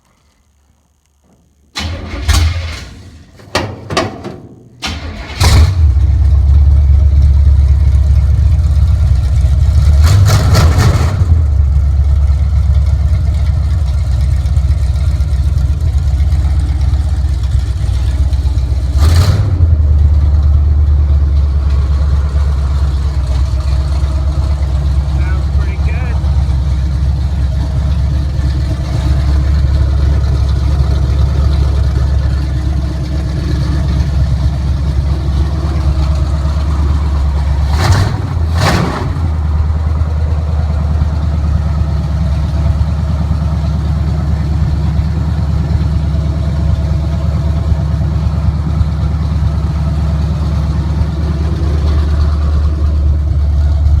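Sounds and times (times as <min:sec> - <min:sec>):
sharp engine cracks: 0:01.8 - 0:06.0
loud engine idling: 0:04.8 - 0:54.0.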